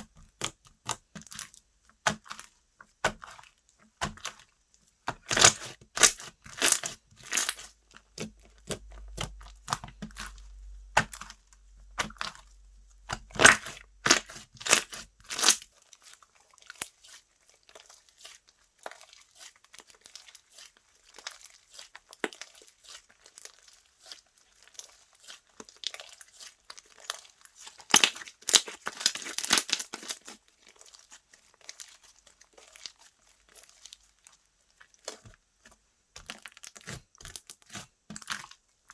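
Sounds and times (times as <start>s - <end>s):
slime crackling: 5.2s - 34.1s.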